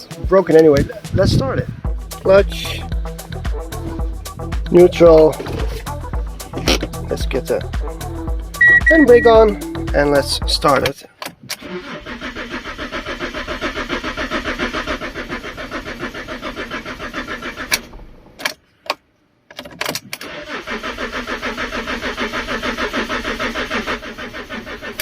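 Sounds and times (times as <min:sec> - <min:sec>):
car engine cranking on starter: 0:04.7 - 0:07.6, 0:11.5 - 0:18.4, 0:20.1 - 0:25.0.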